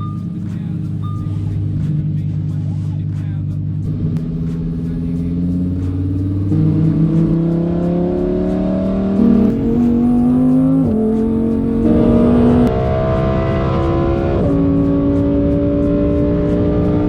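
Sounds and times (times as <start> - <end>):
sports car engine accelerating: 3.8 - 17.0.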